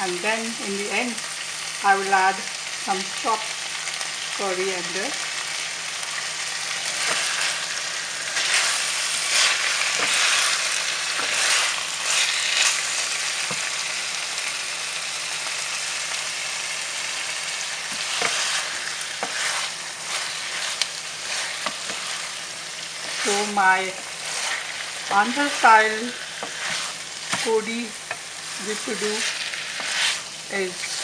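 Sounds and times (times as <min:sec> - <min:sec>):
chicken sizzling in a pan: 0:00.0 - 0:31.0
spatula scraping a pan: 0:06.9 - 0:13.6, 0:17.8 - 0:22.4, 0:23.0 - 0:31.0.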